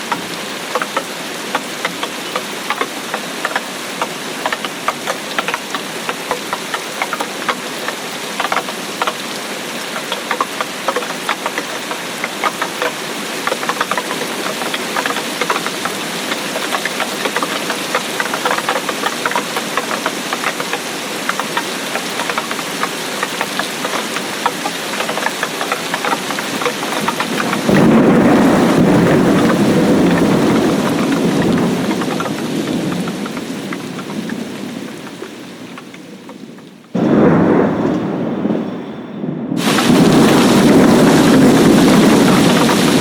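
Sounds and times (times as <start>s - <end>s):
steady rain: 0.0s - 43.0s
thunder rumble: 25.1s - 43.0s.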